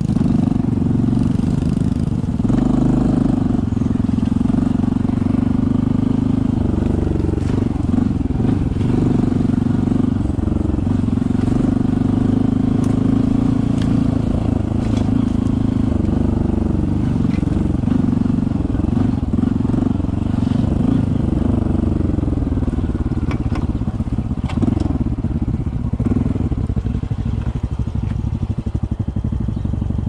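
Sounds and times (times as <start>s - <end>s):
motorcycle engine running: 0.0s - 30.0s
motorcycle knocks and clatters: 22.6s - 29.7s.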